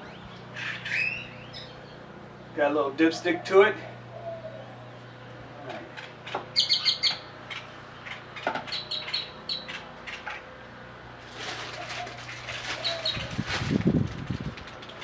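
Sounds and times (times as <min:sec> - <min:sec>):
bird chirping: 0:00.0 - 0:02.5, 0:06.5 - 0:09.9.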